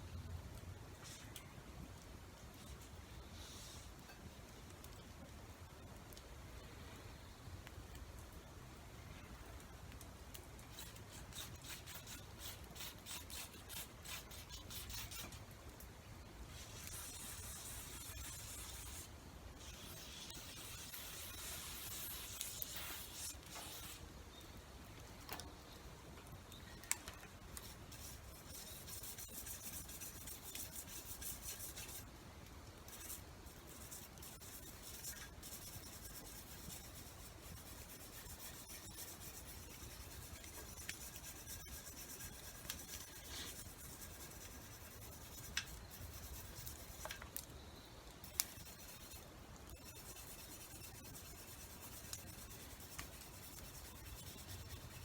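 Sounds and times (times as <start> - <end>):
steady hiss: 0.0 - 55.0
rasping strokes on a tool: 10.7 - 15.4, 16.5 - 24.0, 27.6 - 32.1, 32.9 - 47.2, 48.2 - 55.0.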